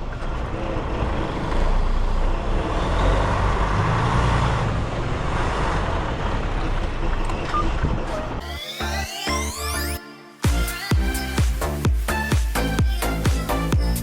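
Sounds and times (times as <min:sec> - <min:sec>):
truck engine and road noise: 0:00.0 - 0:08.5.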